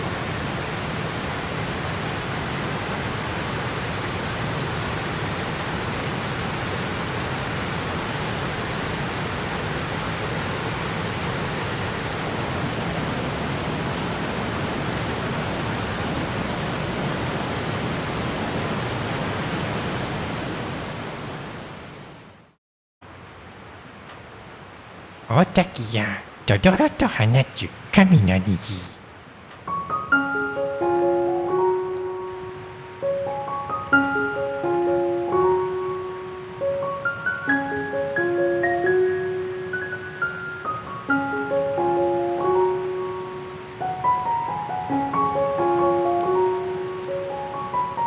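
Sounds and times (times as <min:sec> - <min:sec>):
waterfall rushing: 0:00.0 - 0:22.2.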